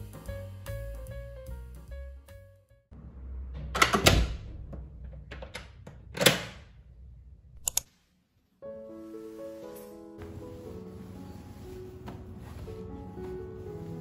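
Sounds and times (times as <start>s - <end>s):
background music: 0.0s - 3.0s, 8.6s - 14.0s
sharp clicks: 7.6s - 7.9s.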